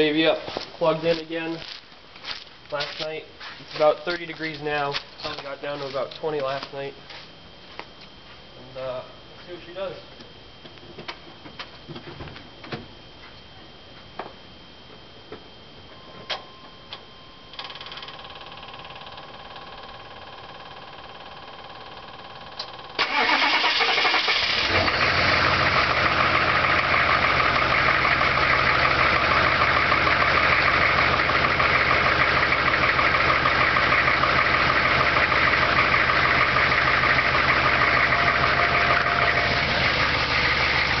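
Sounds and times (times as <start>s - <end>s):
starter motor cranking: 23.0s - 25.1s
truck engine idling: 23.0s - 41.0s.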